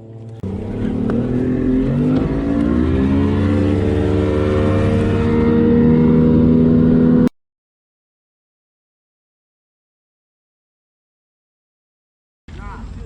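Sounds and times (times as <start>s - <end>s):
outboard motor accelerating: 0.0s - 7.3s.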